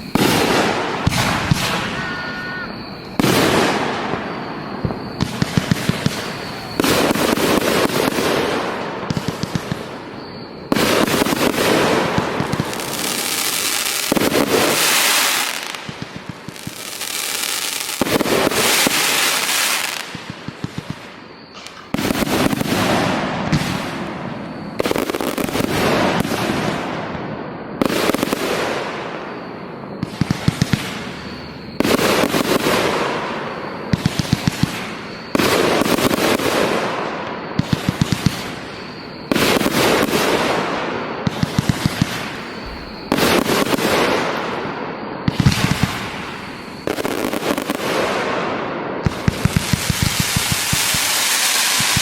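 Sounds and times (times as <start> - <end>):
firework sharp pops: 0.0 - 24.0, 30.0 - 52.0
firework bursts hissing: 10.7 - 24.0, 49.1 - 52.0.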